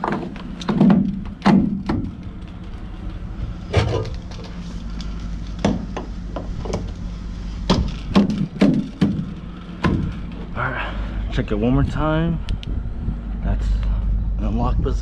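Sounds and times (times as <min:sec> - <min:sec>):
knocks and clanks: 0:00.0 - 0:04.6, 0:05.5 - 0:07.0, 0:07.6 - 0:10.5.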